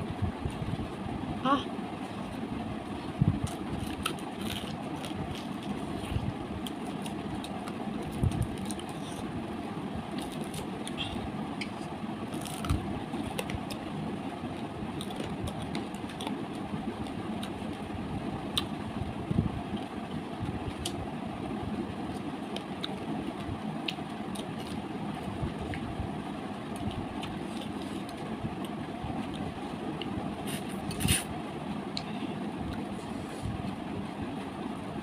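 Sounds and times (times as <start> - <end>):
low background rumble: 0.0 - 35.0
chewing and crunching fried fish: 3.4 - 9.3, 10.1 - 13.9, 14.5 - 17.8.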